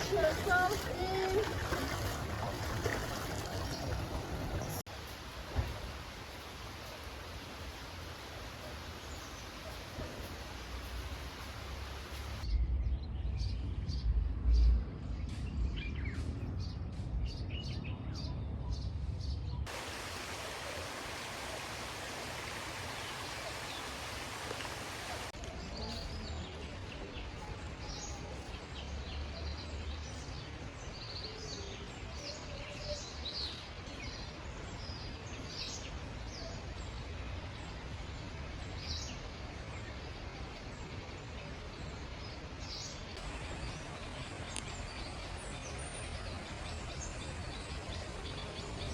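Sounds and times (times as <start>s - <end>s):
flowing river rushing: 0.0s - 12.4s, 19.7s - 25.4s
small birds chirping: 7.6s - 48.9s.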